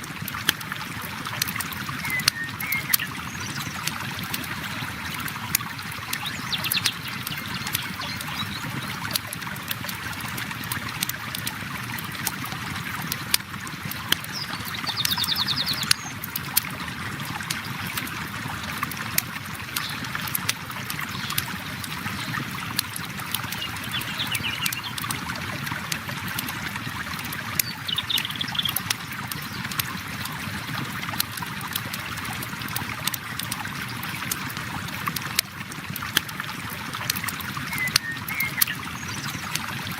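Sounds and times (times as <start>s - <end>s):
river water flowing: 0.0s - 39.9s
campfire crackling and popping: 9.0s - 15.2s.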